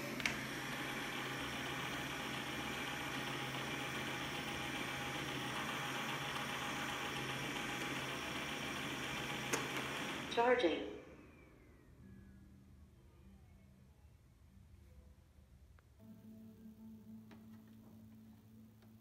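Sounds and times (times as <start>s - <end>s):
robot vacuum running: 0.0s - 11.6s.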